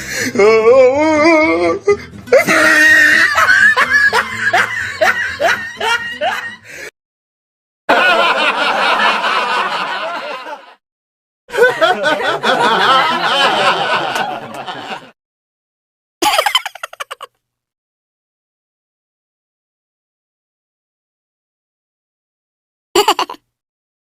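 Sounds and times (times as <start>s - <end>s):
person laughing: 2.3s - 6.6s, 16.2s - 17.3s, 23.0s - 23.4s.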